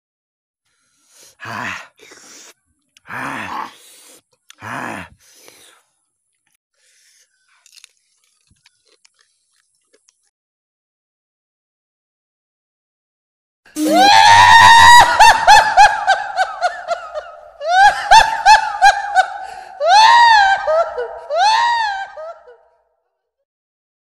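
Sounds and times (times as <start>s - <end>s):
high-pitched cartoon laughter: 13.8s - 22.6s.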